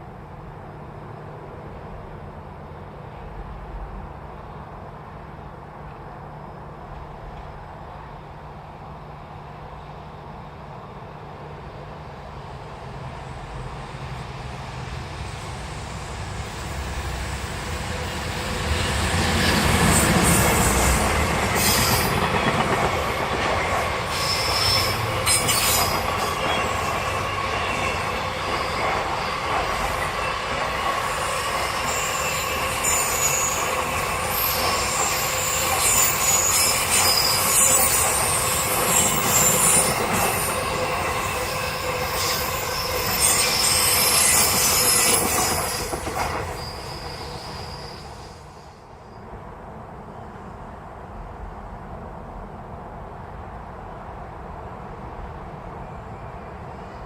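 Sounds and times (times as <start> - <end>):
train passing: 0.0 - 57.0
train wheels squealing: 13.2 - 49.3, 55.7 - 57.0.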